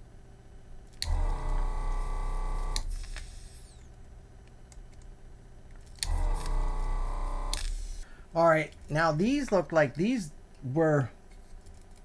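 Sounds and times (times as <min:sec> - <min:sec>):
vacuum pump motor hum: 0:01.0 - 0:03.8, 0:06.0 - 0:07.8.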